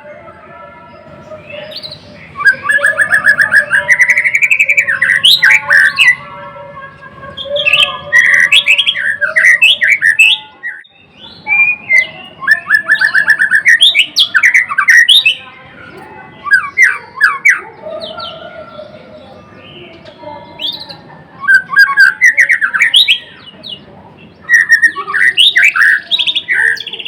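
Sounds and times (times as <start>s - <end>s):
bird singing varied whistles: 7.4s - 15.4s, 21.4s - 23.5s, 24.5s - 27.0s.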